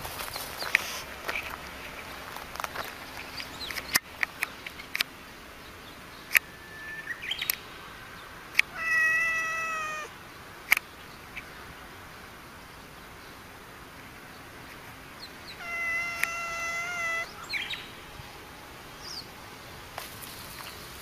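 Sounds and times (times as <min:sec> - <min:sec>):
cat meowing: 0:08.7 - 0:10.1, 0:15.6 - 0:17.4.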